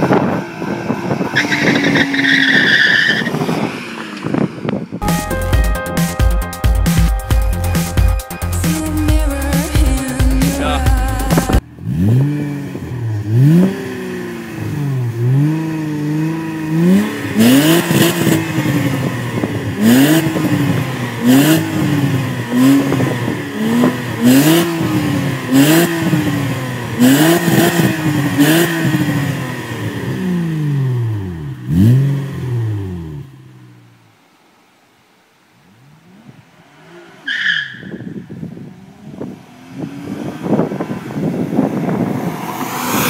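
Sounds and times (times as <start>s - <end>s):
car engine revving: 9.5s - 34.0s, 38.7s - 43.0s.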